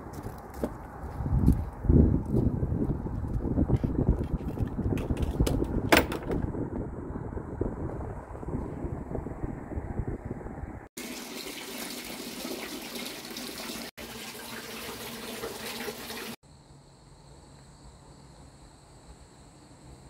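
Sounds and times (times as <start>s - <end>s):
wind rumble on microphone: 0.0s - 10.9s.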